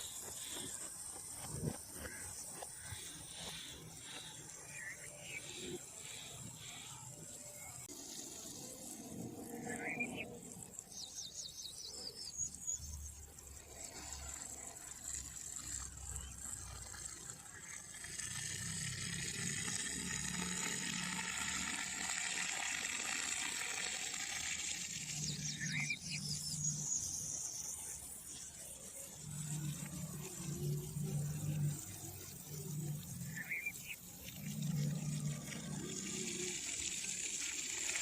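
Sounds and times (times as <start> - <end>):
running water: 13.2 - 38.0.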